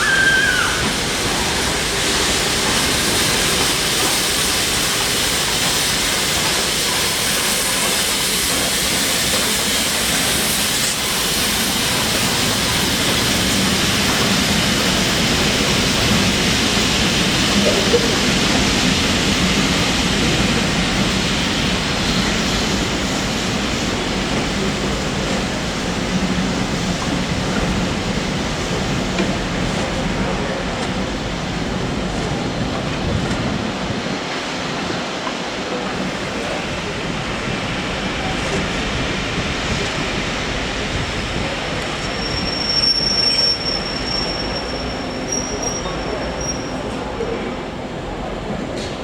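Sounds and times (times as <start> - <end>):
steam locomotive blowing off steam: 0.0 - 47.3
train rumbling on rails: 0.0 - 49.0
high-pitched wheel squeal: 42.1 - 46.8.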